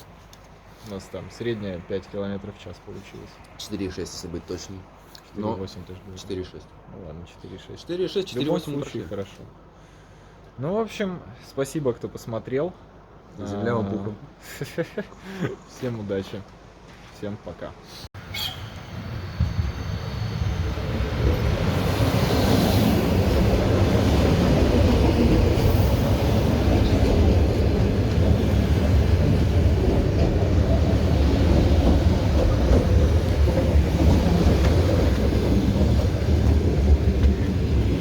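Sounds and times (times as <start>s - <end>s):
train rumbling on track: 18.2s - 38.0s.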